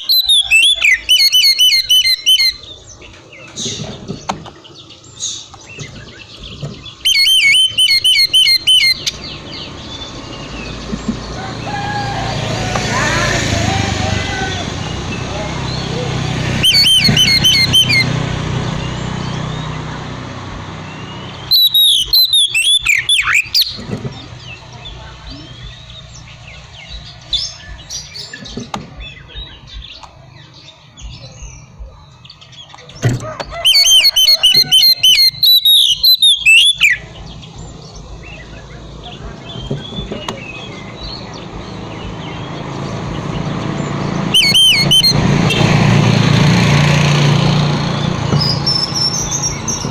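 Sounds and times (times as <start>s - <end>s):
bird singing whistled phrases: 0.0s - 2.8s, 7.0s - 9.4s, 16.6s - 18.2s, 21.0s - 23.8s, 33.6s - 37.1s, 44.3s - 45.2s, 48.4s - 49.9s
faint bird chirps: 5.2s - 9.4s, 21.4s - 23.8s, 44.4s - 45.1s.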